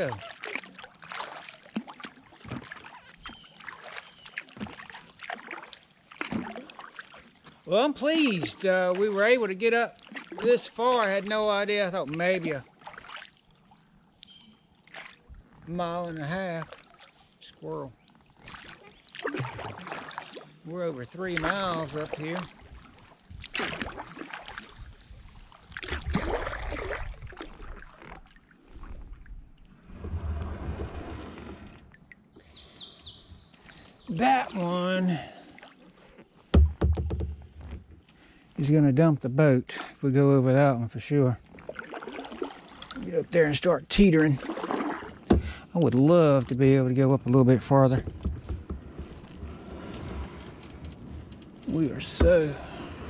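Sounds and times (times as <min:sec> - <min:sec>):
paddle splashing in water: 0:00.0 - 0:38.6, 0:41.4 - 0:53.0
small knocks: 0:36.5 - 0:37.9, 0:47.9 - 0:49.2.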